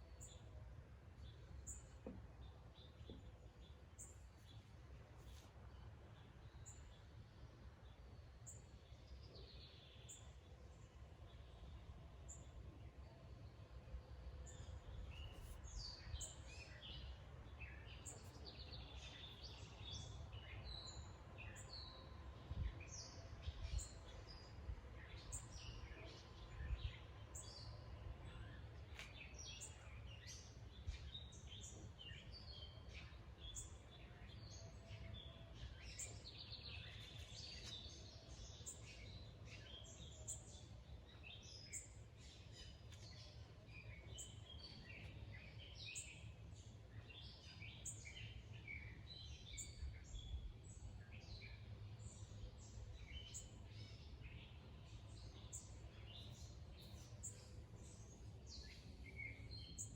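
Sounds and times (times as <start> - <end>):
birds chirping: 22.6 - 59.9.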